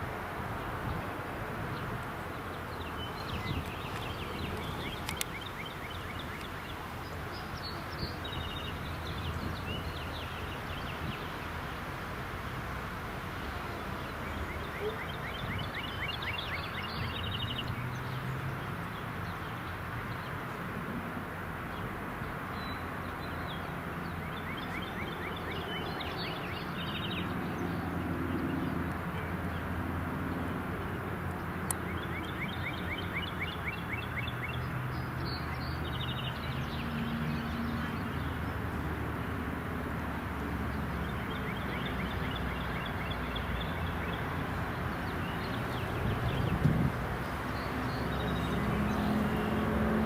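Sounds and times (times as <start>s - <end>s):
songbird trilling: 2.6s - 11.2s.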